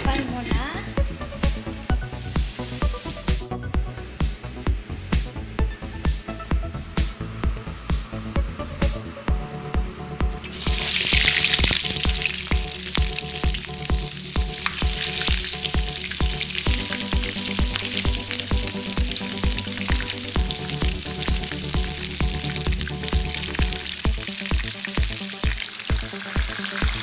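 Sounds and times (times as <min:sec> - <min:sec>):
background music with steady beat: 0:00.0 - 0:27.0
shrimp frying in hot oil: 0:00.1 - 0:03.4, 0:10.4 - 0:27.0.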